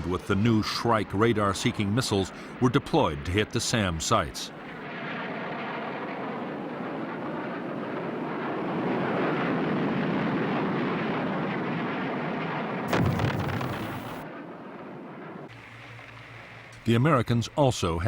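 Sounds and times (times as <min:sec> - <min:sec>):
explosion blast: 0:12.9 - 0:14.2
dense steady roar: 0:12.9 - 0:18.0.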